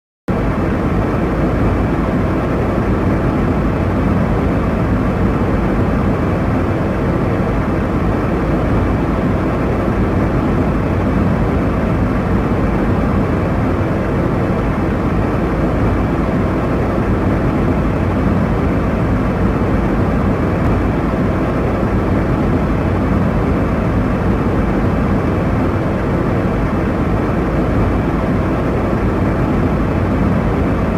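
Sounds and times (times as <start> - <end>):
airliner engine and airflow rush: 0.3 - 30.9.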